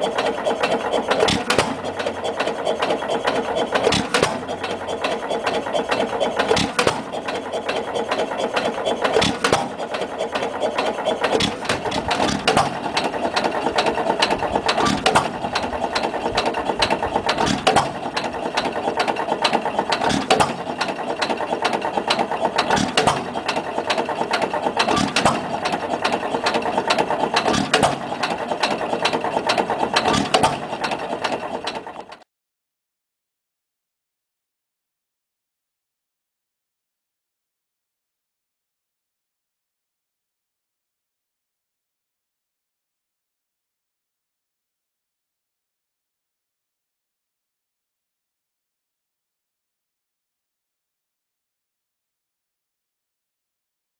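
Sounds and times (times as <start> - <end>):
engine firing stroke: 0.0 - 32.2
engine parts clattering: 0.0 - 32.2.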